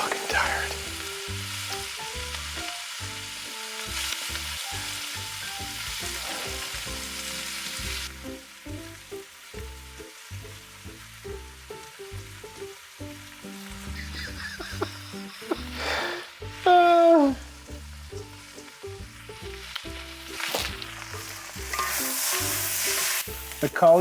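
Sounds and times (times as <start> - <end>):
background music: 0.0 - 24.0
food sizzling in hot oil: 0.0 - 24.0.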